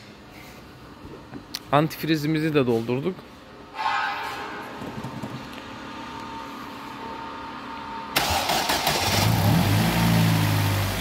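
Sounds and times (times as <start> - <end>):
starter cranking engine: 8.2 - 9.6
car engine revving and idling: 8.2 - 11.0.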